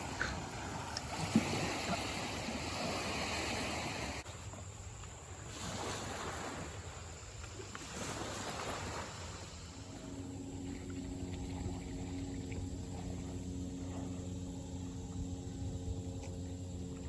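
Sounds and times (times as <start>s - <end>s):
water rushing and splashing: 0.0s - 15.2s
small motor humming: 9.8s - 17.0s.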